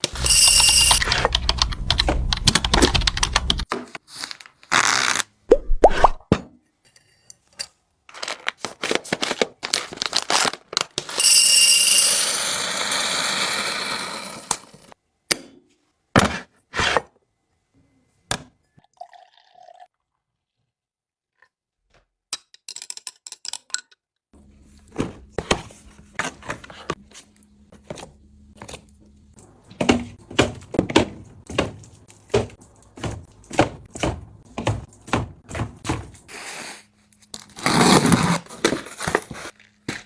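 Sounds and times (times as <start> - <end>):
packaging clicks taps and rustles: 8.1 - 11.1.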